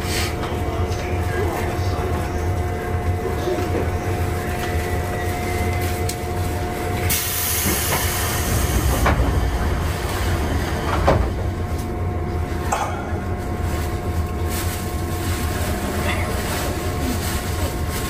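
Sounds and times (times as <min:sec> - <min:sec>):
train equipment humming: 0:00.0 - 0:18.0.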